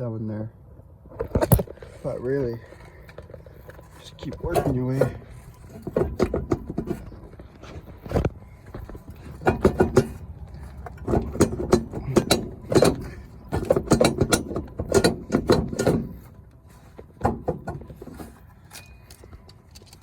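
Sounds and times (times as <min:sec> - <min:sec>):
metal clanks and knocks: 0:02.7 - 0:20.0.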